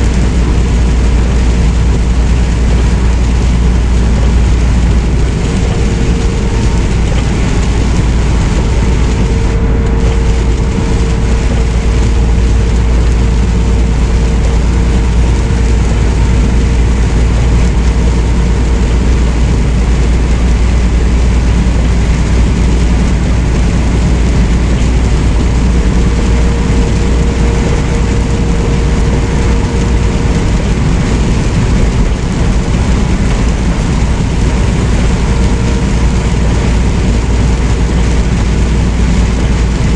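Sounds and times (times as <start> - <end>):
road noise: 0.0 - 39.9
truck engine drone: 0.0 - 39.9.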